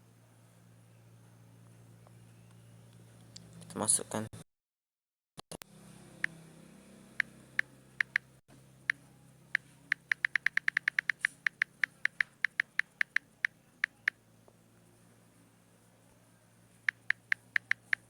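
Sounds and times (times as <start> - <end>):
faint low hum: 0.0 - 4.3, 5.6 - 18.0
keyboard key clicks: 9.9 - 13.2.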